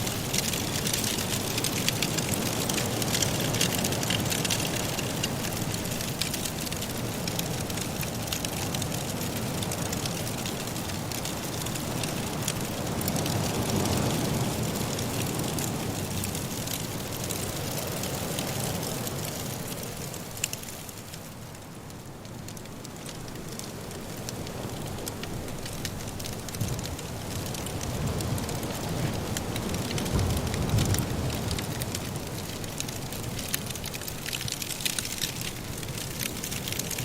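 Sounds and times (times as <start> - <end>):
wood fire crackling and popping: 0.0 - 37.0
rushing blizzard wind: 22.6 - 37.0.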